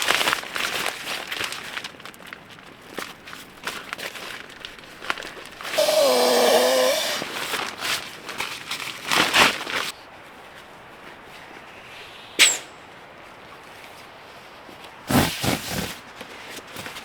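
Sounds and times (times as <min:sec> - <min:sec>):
rustling of handled gear: 0:00.0 - 0:10.0
drawn-out rasp: 0:05.7 - 0:07.5.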